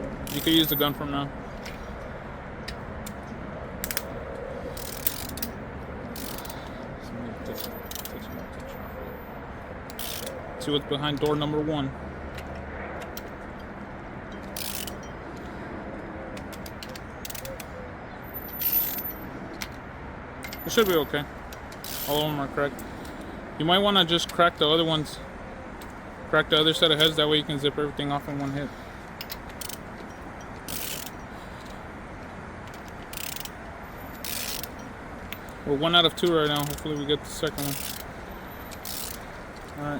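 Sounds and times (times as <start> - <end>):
ratchet wrench clicking: 0.2 - 0.8, 2.7 - 4.1, 4.7 - 5.6, 6.2 - 6.8, 7.6 - 8.3, 9.9 - 10.4, 14.4 - 15.2, 16.4 - 17.7, 20.4 - 22.4, 29.2 - 31.8, 32.6 - 35.6, 36.3 - 39.8
metal tools clinking: 0.2 - 2.0, 2.7 - 6.8, 7.4 - 11.5, 14.3 - 15.5, 18.3 - 19.8, 20.4 - 23.2, 29.2 - 31.8, 32.7 - 39.9.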